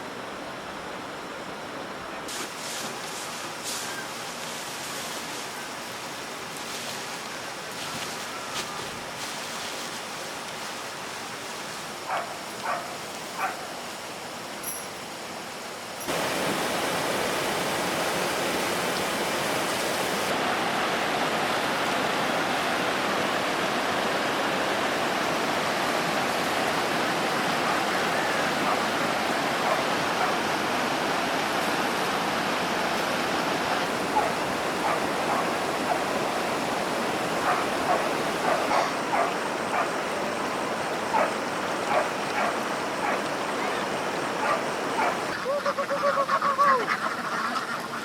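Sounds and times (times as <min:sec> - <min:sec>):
dog yelping: 0:29.6 - 0:30.4, 0:34.1 - 0:36.1, 0:37.4 - 0:39.9, 0:44.4 - 0:45.6.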